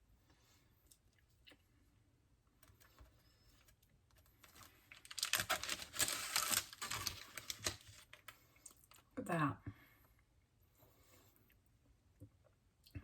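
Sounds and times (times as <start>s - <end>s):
crackling handling noise: 2.6s - 9.0s.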